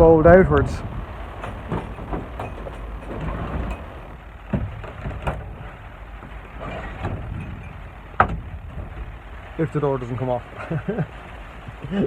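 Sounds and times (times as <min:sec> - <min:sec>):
rain on a plastic roof: 0:00.0 - 0:12.0
sharp knocks: 0:01.4 - 0:06.4, 0:07.0 - 0:09.0.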